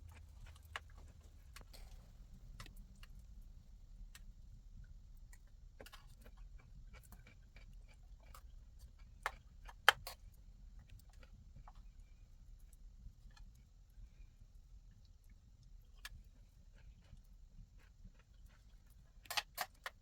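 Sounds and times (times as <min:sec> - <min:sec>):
wood fire crackling: 0:00.0 - 0:04.5
low steady rumble: 0:00.0 - 0:20.0.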